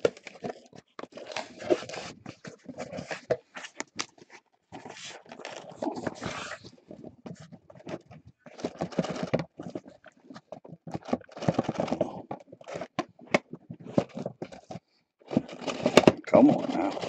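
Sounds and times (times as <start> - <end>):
card pack wrappers crinkling: 0.0 - 4.1.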